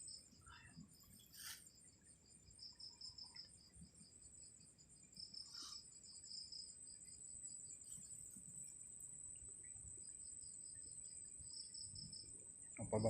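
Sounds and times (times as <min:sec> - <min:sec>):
cricket high pulsing trill: 0:00.0 - 0:13.0
lower pulsing cricket chirp: 0:00.0 - 0:13.0.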